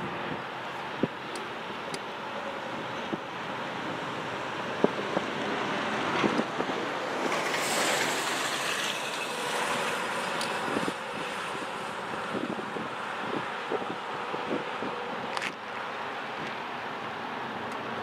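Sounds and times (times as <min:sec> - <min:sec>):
strong wind rushing: 0:04.2 - 0:15.3.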